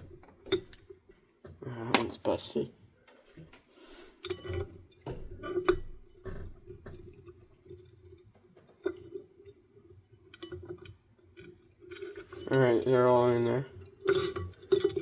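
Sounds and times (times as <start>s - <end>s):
small parts clicking and clinking: 4.2s - 15.0s.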